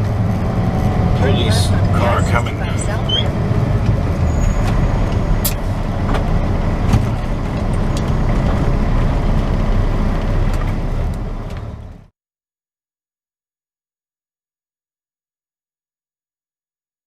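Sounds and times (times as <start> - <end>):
truck engine and road rumble: 0.0 - 12.1.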